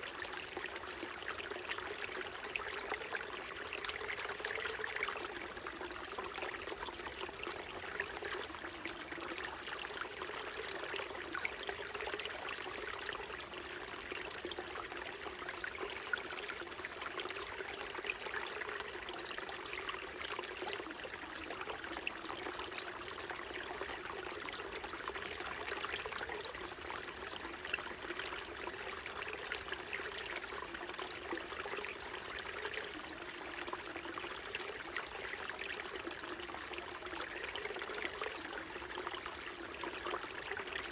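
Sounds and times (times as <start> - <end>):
stream burbling over rocks: 0.0 - 40.9.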